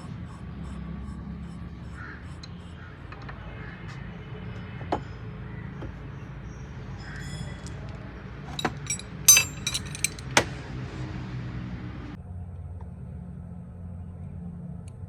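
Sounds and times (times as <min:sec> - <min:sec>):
metal clink: 0:08.6 - 0:10.3.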